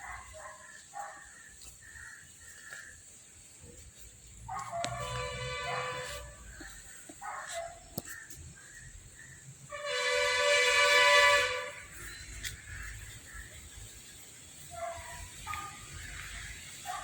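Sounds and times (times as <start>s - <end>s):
train horn blast: 4.8s - 6.6s, 9.7s - 12.3s.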